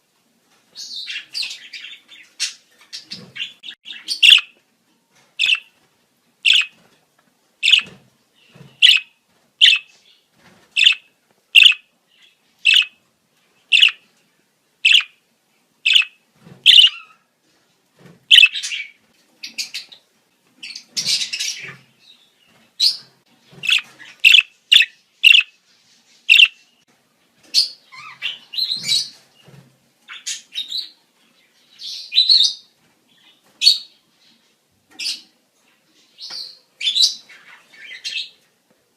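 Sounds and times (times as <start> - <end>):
budgerigar chirps and chatter: 1.1 - 4.5, 5.4 - 5.7, 6.5 - 6.7, 7.6 - 7.9, 8.8 - 9.9, 10.8 - 11.0, 11.6 - 11.8, 12.7 - 13.0, 13.7 - 14.0, 14.9 - 15.1, 15.9 - 17.2, 18.3 - 18.9, 23.6 - 25.5, 26.3 - 26.6.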